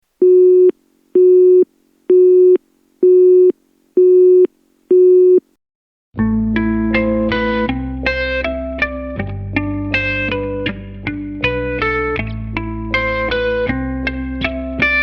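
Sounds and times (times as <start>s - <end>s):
telephone busy signal beeps: 0.2s - 5.4s.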